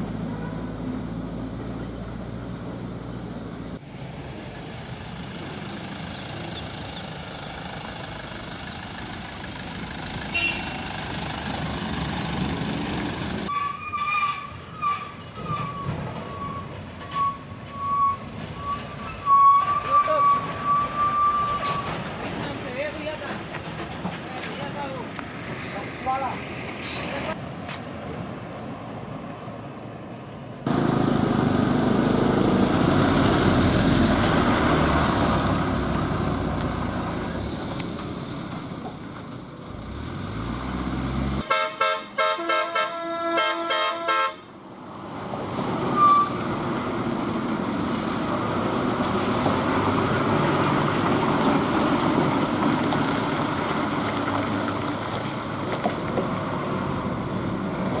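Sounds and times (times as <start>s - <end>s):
road noise: 0.0s - 58.0s
truck diesel engine: 0.0s - 58.0s
multi-tone truck horn: 10.3s - 10.9s, 41.4s - 44.5s.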